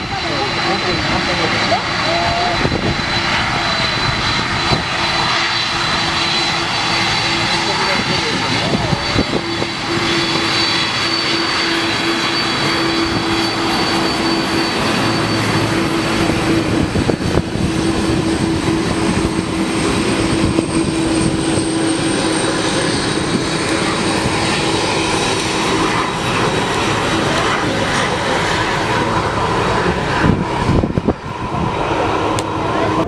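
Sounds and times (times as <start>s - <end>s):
high engine whine: 0.0s - 33.0s
jet engines running: 0.0s - 33.0s.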